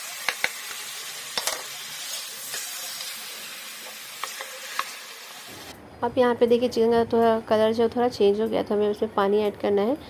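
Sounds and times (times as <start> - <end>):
chicken sizzling in hot oil: 0.0 - 5.7.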